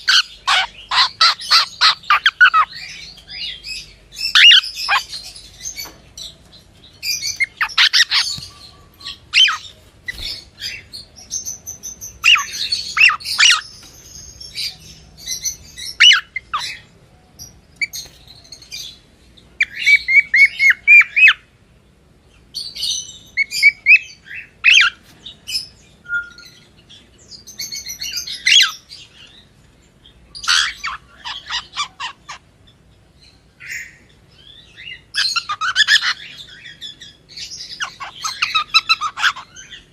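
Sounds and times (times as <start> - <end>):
cockatiel chirping: 0.0 - 3.5, 4.3 - 5.4, 7.0 - 11.6, 12.2 - 13.8, 30.4 - 32.4, 34.8 - 39.8.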